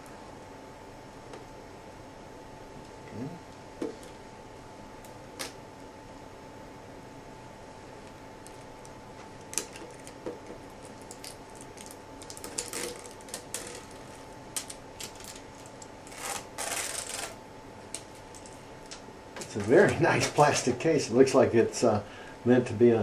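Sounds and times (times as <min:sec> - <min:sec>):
packaging rustle: 0:10.8 - 0:17.4.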